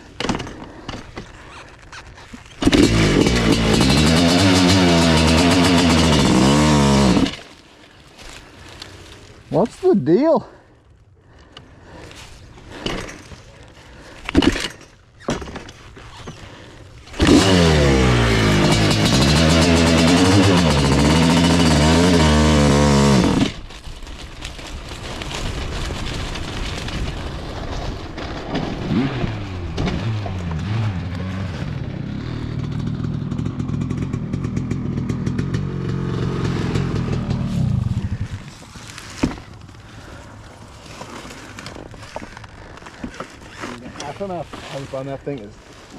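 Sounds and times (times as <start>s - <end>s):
loud two-stroke engine: 2.6s - 7.5s, 17.1s - 23.6s, 28.9s - 38.5s
quieter engine running: 2.6s - 7.5s, 16.5s - 23.6s, 28.9s - 45.6s.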